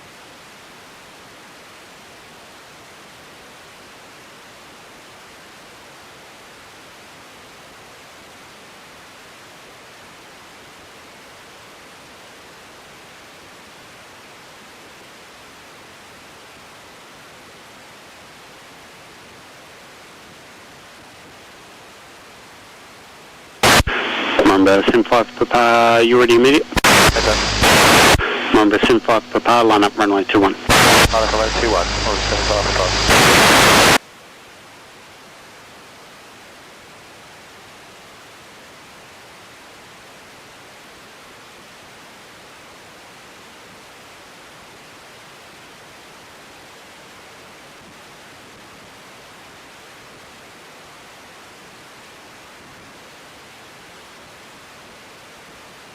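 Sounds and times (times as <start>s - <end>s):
radio static hiss: 23.4s - 34.1s
radio transmission burst: 23.6s - 34.0s.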